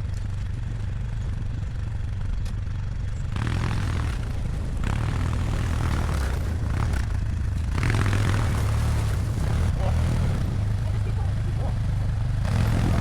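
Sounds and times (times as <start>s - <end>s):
atv engine droning: 0.0s - 13.0s
hay bale dragging rush: 3.4s - 13.0s.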